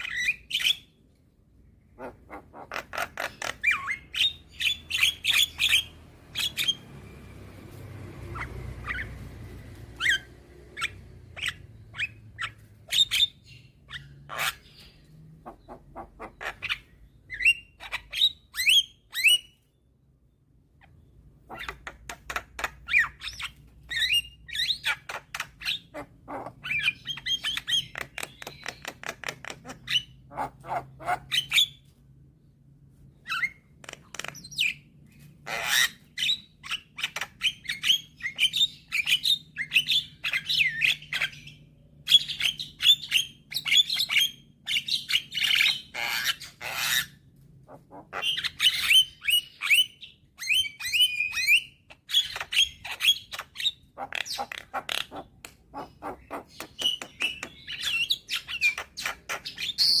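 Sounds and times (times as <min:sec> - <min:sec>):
bird singing with chatter and whistles: 0:00.0 - 0:01.0, 0:03.1 - 0:07.2, 0:16.5 - 0:19.8, 0:35.6 - 0:47.2, 0:48.2 - 0:55.2, 0:55.9 - 1:00.0.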